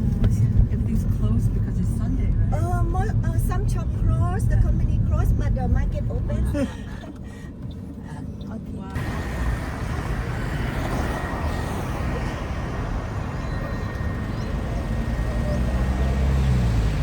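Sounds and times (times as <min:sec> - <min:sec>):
road and wind rush: 0:00.0 - 0:17.0
vehicle engine running: 0:08.9 - 0:17.0.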